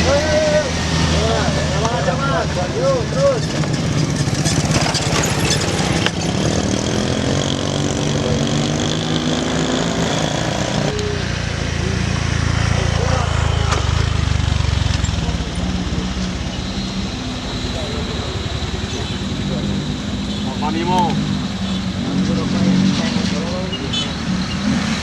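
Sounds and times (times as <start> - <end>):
deeper engine: 0.0 - 25.0
engine labouring uphill: 0.0 - 25.0.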